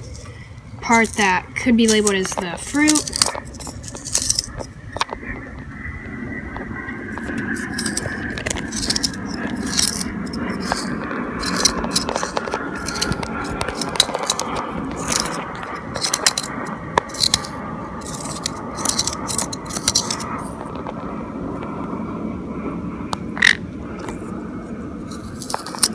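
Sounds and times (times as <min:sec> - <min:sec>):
scraping pulp out of gourd: 0:07.2 - 0:20.3.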